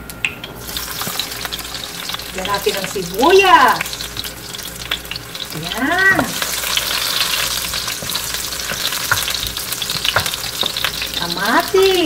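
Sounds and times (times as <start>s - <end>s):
onion and garlic sizzling in oil: 0.2s - 12.0s
wooden spatula stirring: 6.1s - 11.3s.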